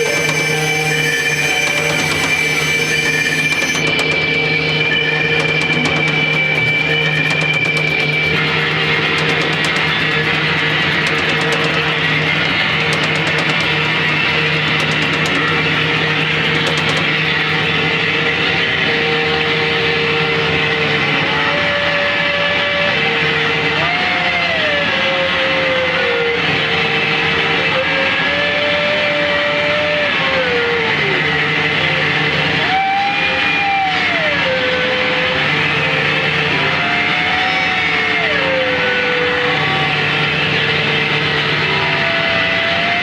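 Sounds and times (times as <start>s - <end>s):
gliding mid-pitched tones: 0.0s - 18.9s
high held tone: 0.0s - 19.2s
low droning tone: 0.0s - 19.8s
wall of distorted noise: 0.0s - 23.5s.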